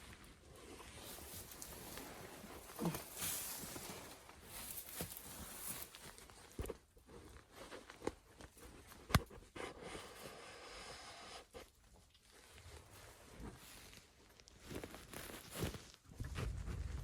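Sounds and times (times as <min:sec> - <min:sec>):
rustling handling noises: 0:00.1 - 0:09.4, 0:11.7 - 0:17.0
faint shuffling footsteps: 0:01.0 - 0:08.0.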